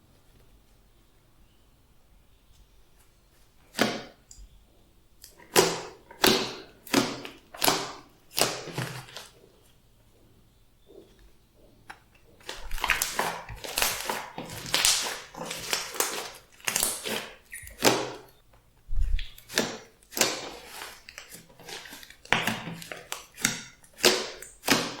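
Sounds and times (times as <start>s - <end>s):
slime squelching by hand: 5.2s - 9.6s, 12.1s - 25.0s.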